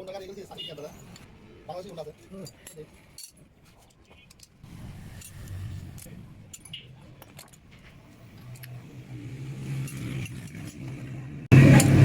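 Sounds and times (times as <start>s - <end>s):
metal tools clinking: 1.0s - 8.8s, 9.7s - 11.0s.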